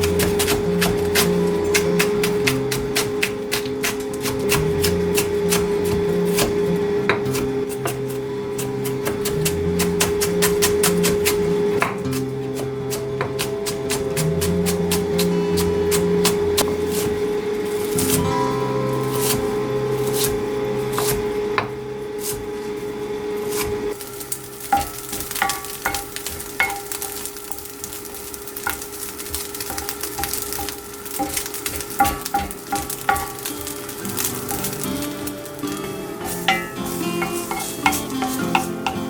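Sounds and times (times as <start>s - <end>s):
food sizzling in a pan: 0.0s - 39.0s
utensil knocking against pan: 29.7s - 33.5s, 36.3s - 39.0s.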